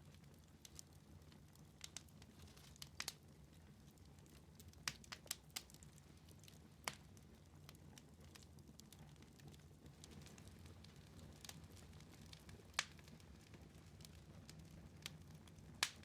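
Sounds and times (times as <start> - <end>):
low rumble of flames: 0.0 - 16.0
wood fire crackling: 0.0 - 16.0
sharp pops of burning wood: 1.8 - 3.2, 12.6 - 13.1, 15.8 - 16.0.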